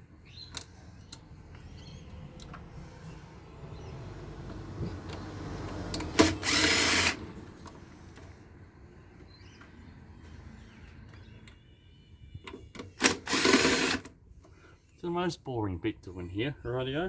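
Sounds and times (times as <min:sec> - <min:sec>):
power drill running: 0:06.1 - 0:07.2, 0:13.0 - 0:14.1.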